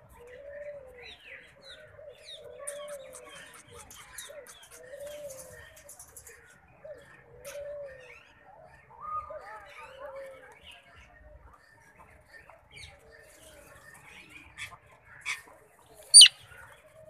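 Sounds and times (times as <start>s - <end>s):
bird cooing: 0.1s - 1.2s, 1.8s - 5.5s, 6.8s - 8.1s
bird chirps and clicks: 2.6s - 6.3s, 16.0s - 16.3s.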